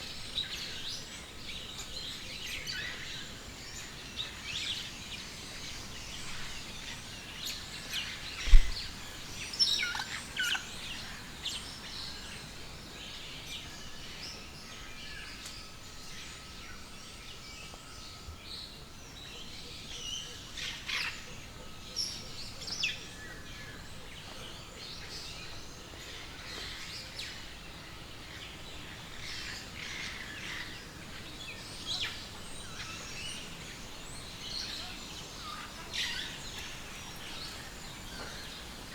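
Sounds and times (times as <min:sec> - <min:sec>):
background hiss: 0:00.0 - 0:19.2, 0:20.6 - 0:38.9
birds chirping: 0:28.4 - 0:38.9.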